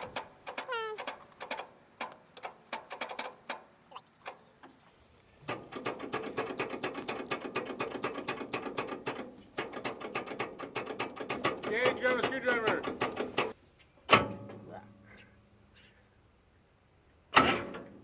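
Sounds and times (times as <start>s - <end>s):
starter clicks: 0.0s - 3.6s, 5.4s - 13.6s
tractor engine cranking clatter: 0.0s - 3.6s, 5.4s - 13.6s.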